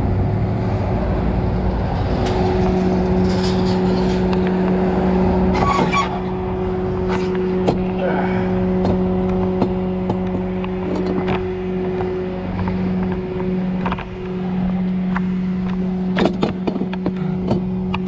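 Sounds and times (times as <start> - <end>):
mechanical hum: 0.0 - 18.0
metallic clicks and knocks: 15.1 - 18.0.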